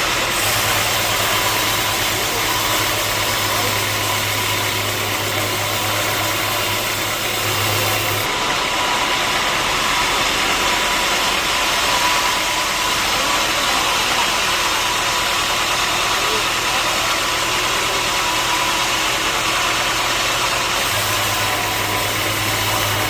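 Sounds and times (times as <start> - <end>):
sawmill machinery running: 0.0 - 23.0.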